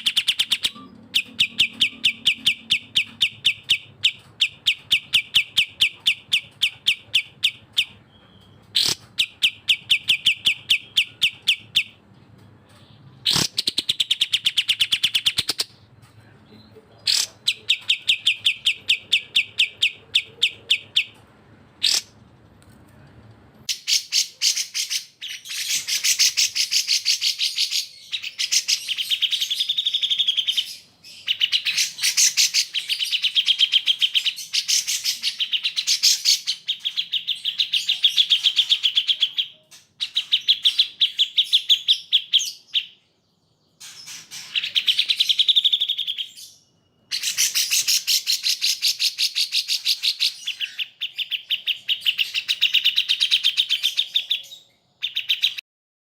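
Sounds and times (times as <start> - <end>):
bird chirping song: 0.0 - 22.3, 23.0 - 55.6
faint low hum: 15.7 - 23.9.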